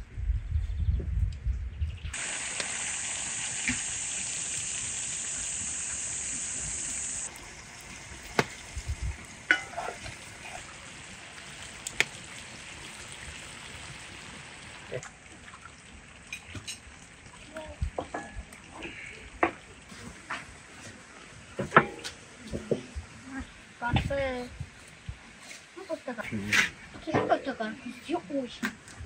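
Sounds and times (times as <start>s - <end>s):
meat frying on hot stone: 2.1s - 21.1s.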